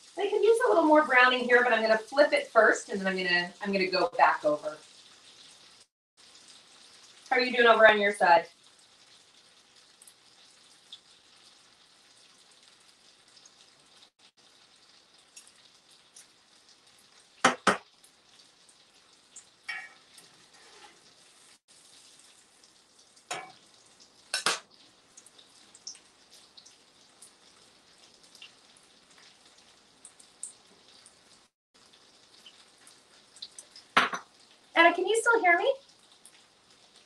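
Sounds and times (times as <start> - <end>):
meat sizzling in oil: 0.0 - 37.0
kitchen clacks: 17.4 - 17.9, 23.3 - 23.6, 24.3 - 24.8, 33.9 - 34.4.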